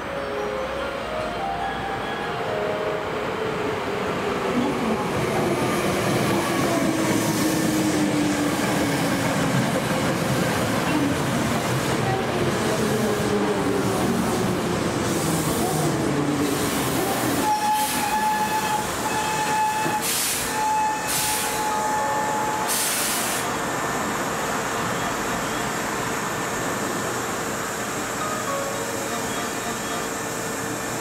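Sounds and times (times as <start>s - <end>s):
steady high tone: 0.0s - 4.8s
train rumbling: 0.0s - 31.0s
short bursts of hiss: 22.6s - 23.5s.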